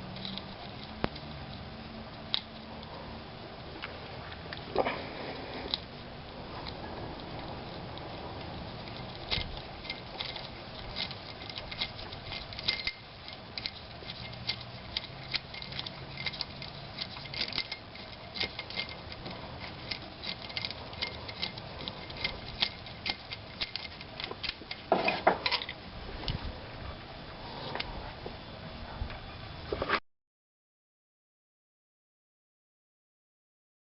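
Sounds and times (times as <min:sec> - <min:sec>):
metal clunk: 0:24.9 - 0:25.7.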